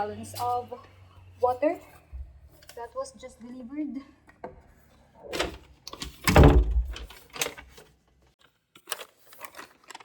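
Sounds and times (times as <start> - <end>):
heavy thump: 6.3 - 7.1.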